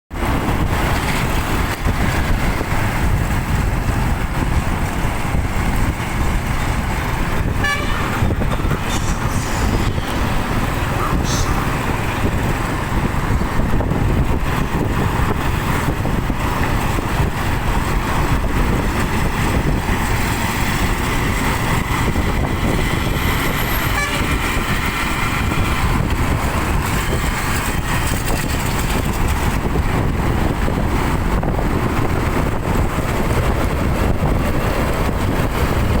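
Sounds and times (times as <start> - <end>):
heavy vehicle engines: 0.1 - 36.0
tyres rumbling on road: 0.1 - 36.0
vehicle horn: 7.5 - 9.7, 23.7 - 24.4.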